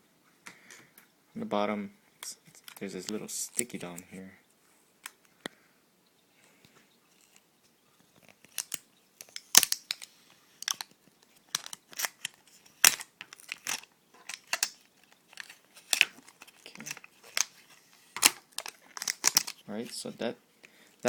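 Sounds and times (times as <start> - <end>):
plastic crackling and snapping: 7.2 - 19.7.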